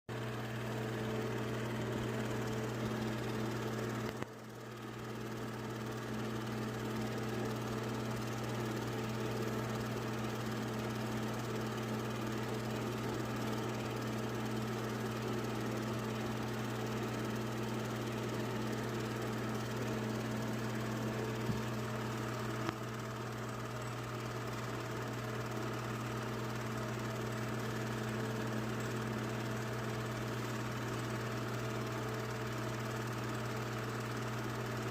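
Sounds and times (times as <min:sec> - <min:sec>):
small motor humming: 0:00.2 - 0:34.9.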